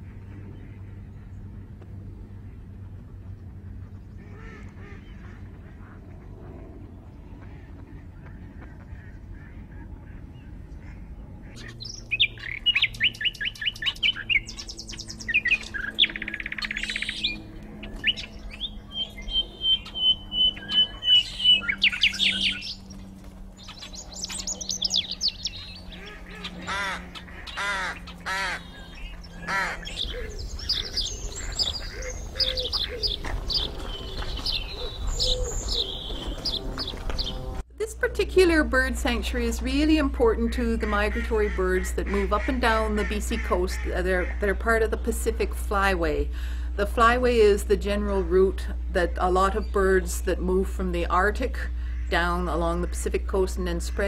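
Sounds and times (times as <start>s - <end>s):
birds calling and chirping: 0.0s - 37.7s, 38.4s - 54.0s
harsh bird calls: 7.4s - 37.6s
bird trill: 11.4s - 37.6s.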